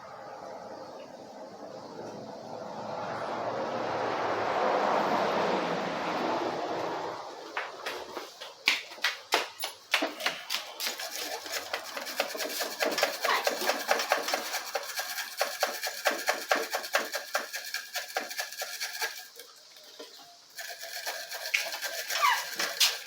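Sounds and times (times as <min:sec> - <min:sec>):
wire brush scrubbing metal: 0:10.2 - 0:19.9, 0:20.5 - 0:23.0.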